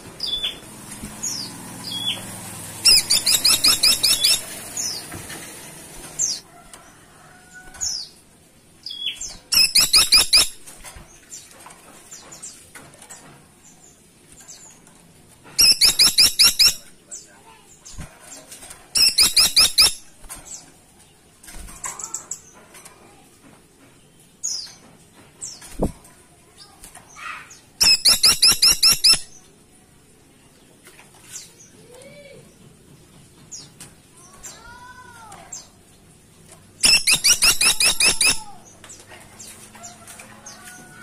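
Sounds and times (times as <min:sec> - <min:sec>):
woodpecker rattling call: 0:02.8 - 0:05.0, 0:15.6 - 0:16.9, 0:19.0 - 0:20.1, 0:27.8 - 0:29.3, 0:36.8 - 0:38.6.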